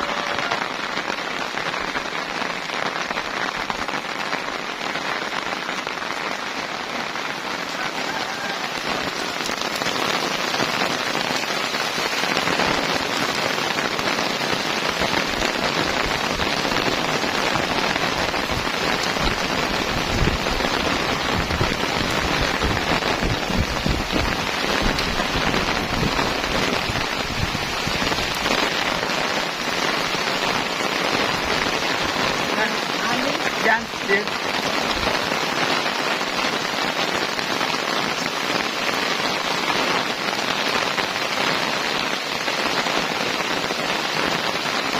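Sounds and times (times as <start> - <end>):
heavy rain pouring: 0.0 - 44.9
wind gusts rumbling: 14.6 - 33.5.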